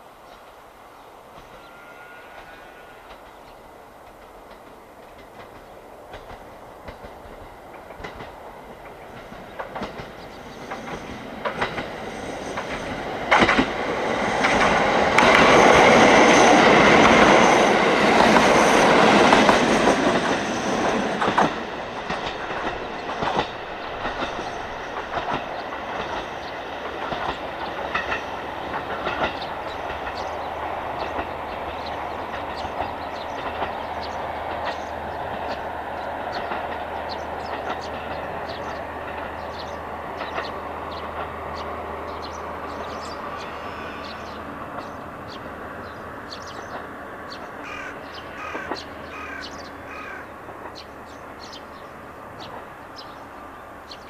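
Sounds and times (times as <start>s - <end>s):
diesel train passing: 0.0s - 54.0s
wheels clicking over rail joints: 3.1s - 43.2s.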